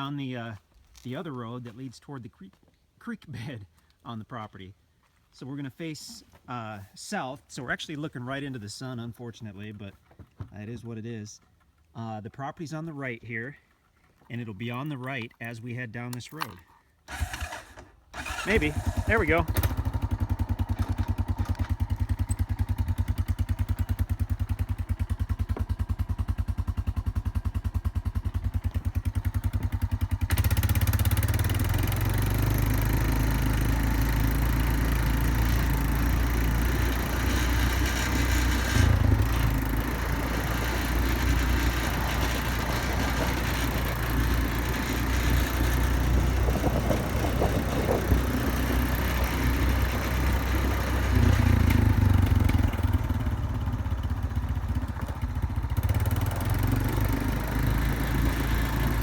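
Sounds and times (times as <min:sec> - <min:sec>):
atv engine running: 0:17.1 - 0:59.0.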